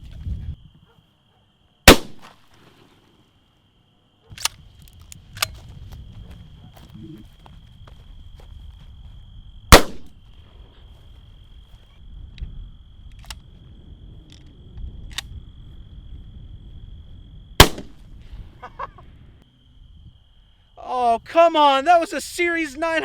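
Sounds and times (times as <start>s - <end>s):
gunshots: 1.9s - 2.4s, 9.7s - 10.1s, 17.6s - 18.0s.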